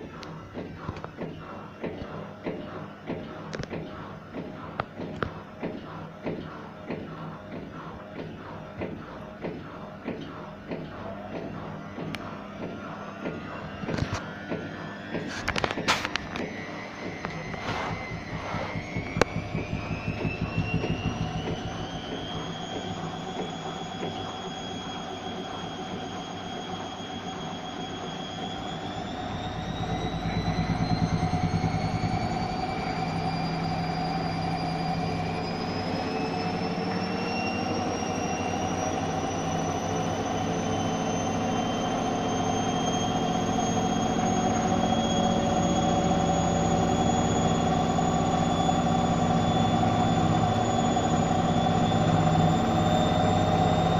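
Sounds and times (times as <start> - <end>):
washing machine motor whine: 0.0 - 53.9
drum knocking: 17.2 - 23.5.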